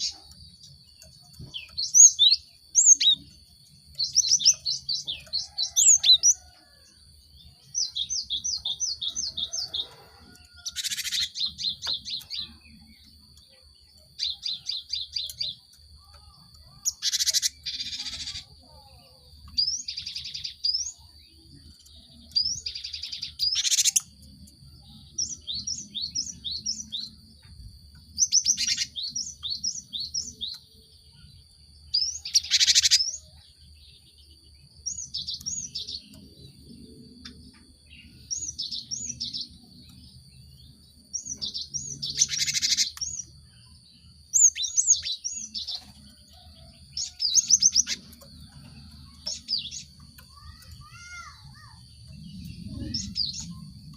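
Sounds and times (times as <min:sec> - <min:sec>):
bird chirping: 0:00.0 - 0:53.9
bird buzzy scolding calls: 0:16.8 - 0:20.8, 0:32.0 - 0:33.2, 0:49.2 - 0:51.8.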